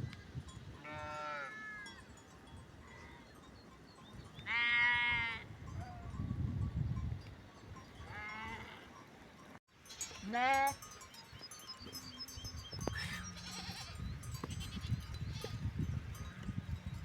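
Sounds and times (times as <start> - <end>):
sheep bleating: 0.8 - 1.9, 13.0 - 14.0.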